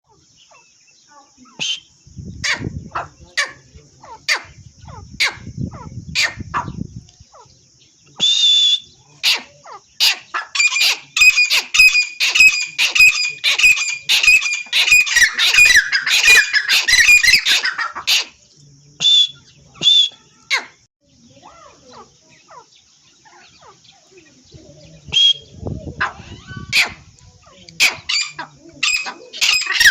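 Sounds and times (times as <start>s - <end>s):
francolins calling: 0.0s - 29.9s.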